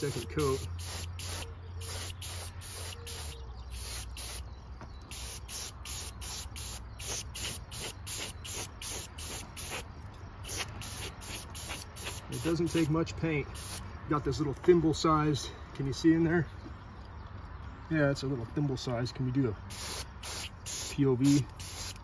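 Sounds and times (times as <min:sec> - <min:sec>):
airbrush hissing in pulses: 0:00.0 - 0:04.4, 0:05.1 - 0:13.8, 0:19.7 - 0:22.0.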